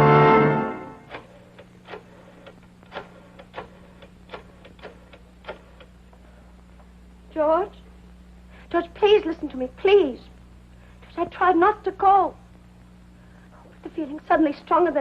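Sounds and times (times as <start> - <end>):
brass music sting: 0.0 - 1.0
faint steady hum: 0.0 - 15.0.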